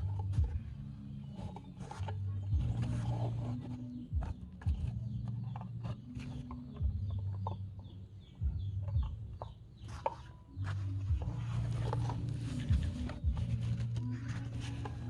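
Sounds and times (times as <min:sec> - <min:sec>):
bird chirping: 0:00.0 - 0:15.0
low hum: 0:00.0 - 0:15.0.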